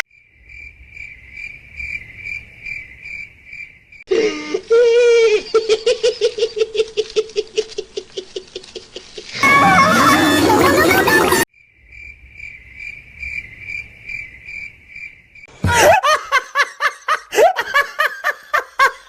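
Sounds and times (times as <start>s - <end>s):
cricket chirping: 0.1s - 4.5s, 11.5s - 15.5s
quick repeated laughter: 4.6s - 11.5s, 15.6s - 19.0s.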